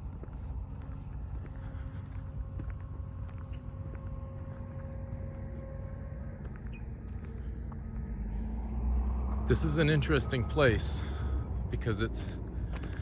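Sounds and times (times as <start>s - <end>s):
distant engines rumbling: 0.0s - 13.0s
faint steady tone: 0.0s - 13.0s.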